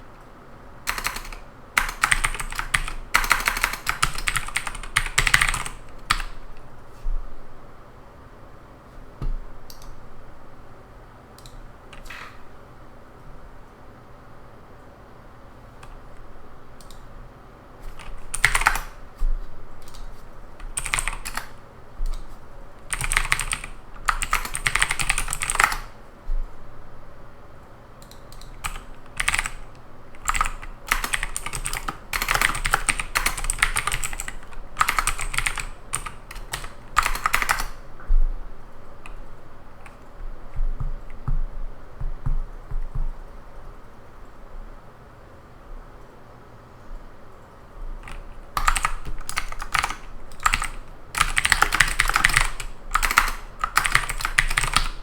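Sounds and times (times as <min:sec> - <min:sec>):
typing on computer keyboard: 0:00.9 - 0:06.6, 0:09.7 - 0:10.0, 0:16.8 - 0:17.1, 0:17.8 - 0:19.0, 0:19.8 - 0:26.0, 0:28.0 - 0:37.8, 0:39.0 - 0:43.4, 0:48.0 - 0:55.0.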